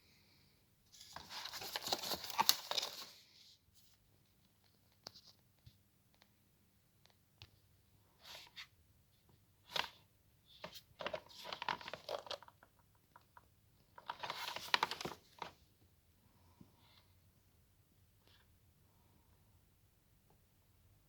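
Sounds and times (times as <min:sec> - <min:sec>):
packaging rustling and tearing: 0:01.0 - 0:03.2.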